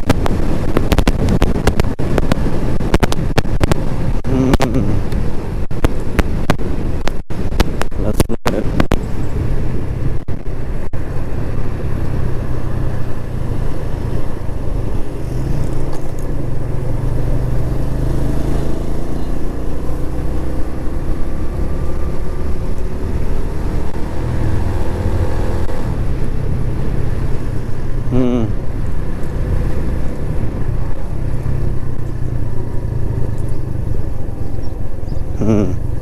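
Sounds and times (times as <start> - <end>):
wind rumble on microphone: 0.0 - 36.0
motorcycle engine running: 8.8 - 36.0.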